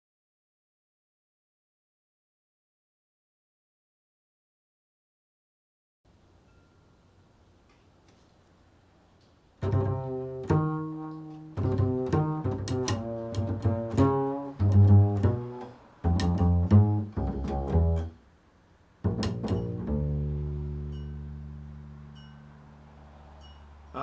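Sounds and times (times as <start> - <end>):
plucked double bass: 9.6 - 18.3, 19.0 - 24.0.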